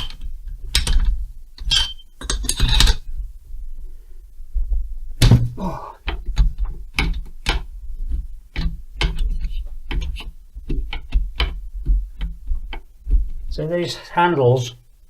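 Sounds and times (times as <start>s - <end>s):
tools and metal parts clicking: 0.0s - 3.0s.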